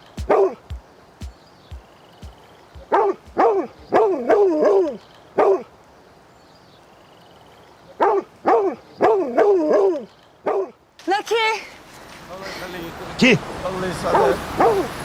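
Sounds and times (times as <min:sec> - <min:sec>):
dog barking: 0:02.9 - 0:05.7, 0:08.0 - 0:10.8, 0:14.1 - 0:14.9.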